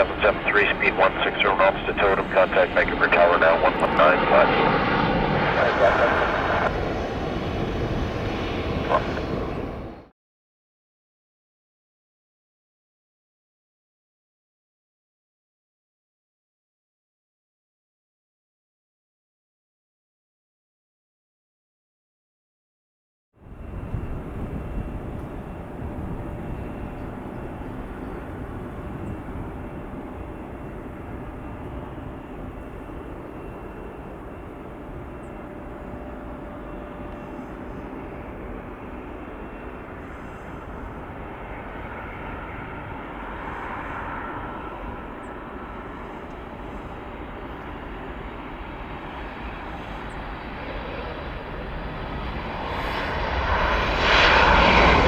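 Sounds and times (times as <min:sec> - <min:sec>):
airliner engine rumble: 0:00.0 - 0:10.1, 0:23.4 - 0:55.0.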